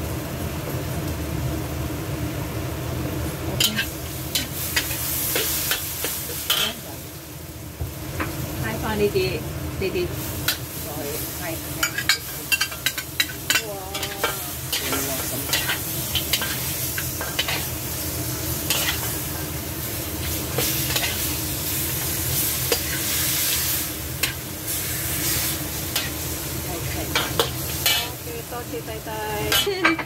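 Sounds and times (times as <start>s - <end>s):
meat sizzling in a wok: 0.0s - 30.0s.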